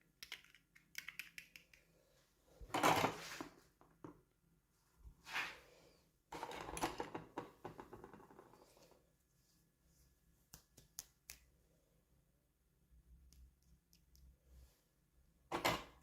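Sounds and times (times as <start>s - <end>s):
plastic pieces clicking: 0.2s - 1.8s.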